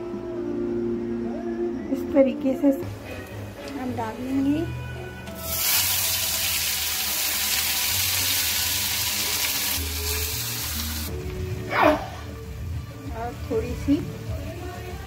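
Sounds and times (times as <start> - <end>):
paste sizzling in hot oil: 5.4 - 11.1.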